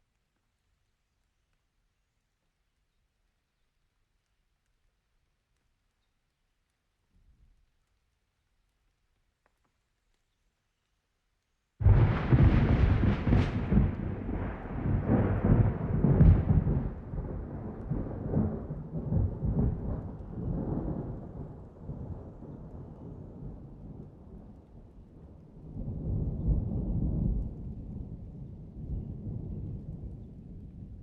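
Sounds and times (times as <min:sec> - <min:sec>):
thunder rumbling: 0:11.8 - 0:31.0.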